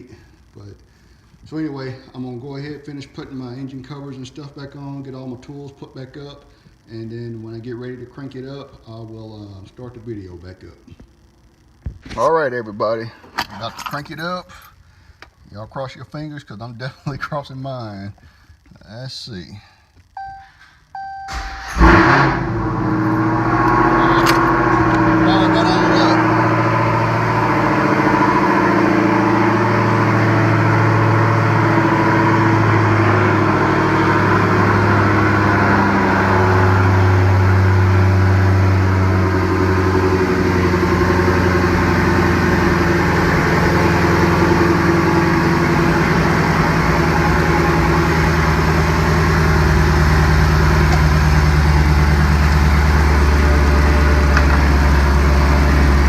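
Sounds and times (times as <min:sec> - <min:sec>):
engine idling: 0:21.3 - 0:56.0.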